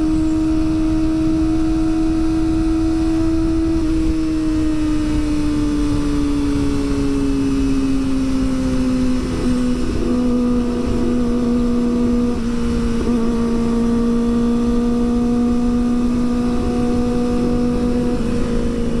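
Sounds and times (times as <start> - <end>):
motorcycle engine at high revs: 0.0 - 19.0
wind rush: 0.0 - 19.0.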